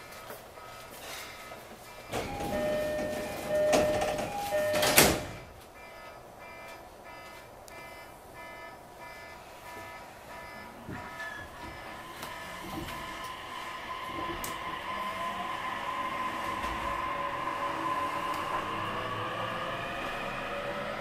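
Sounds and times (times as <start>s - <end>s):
train hissing with alternating tones: 11.5s - 21.0s.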